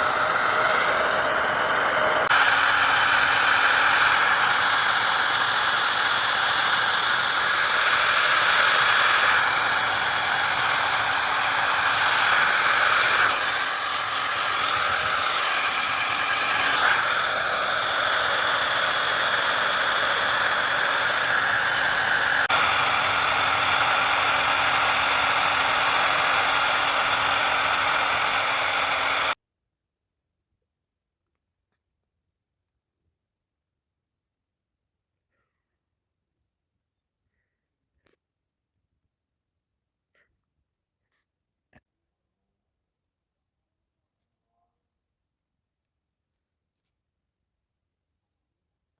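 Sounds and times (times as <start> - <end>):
hairdryer blowing whir: 0.0 - 29.4.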